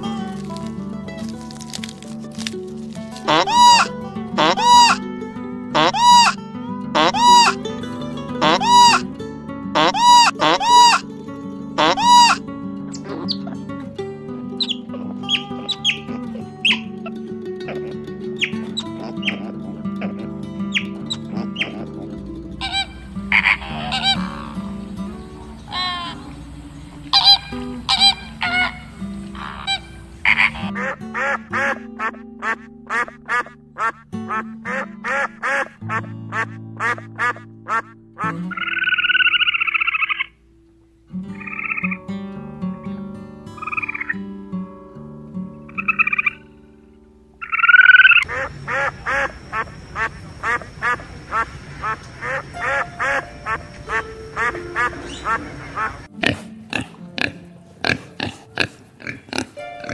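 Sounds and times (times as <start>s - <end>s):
background music: 0.0s - 49.3s, 51.3s - 59.9s
harsh nasal animal call: 3.2s - 5.0s, 5.8s - 6.4s, 7.0s - 7.6s, 8.4s - 9.0s, 9.8s - 11.0s, 11.8s - 13.6s, 14.6s - 40.3s, 47.4s - 59.9s
animal short calls: 3.3s - 5.0s, 5.8s - 6.4s, 7.0s - 7.6s, 9.8s - 11.0s, 11.8s - 12.4s, 22.6s - 24.8s, 27.1s - 34.0s.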